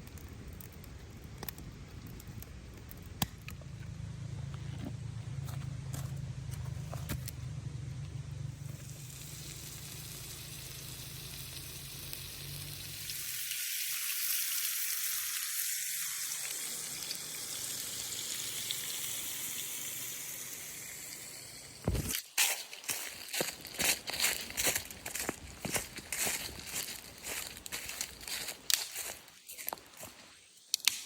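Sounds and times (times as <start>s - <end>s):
food sizzling in a pan: 8.8s - 21.8s.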